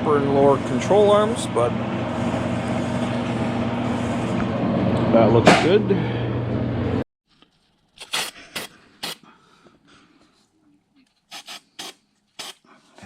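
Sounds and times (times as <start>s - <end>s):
rasping scrapes: 2.1s - 4.4s.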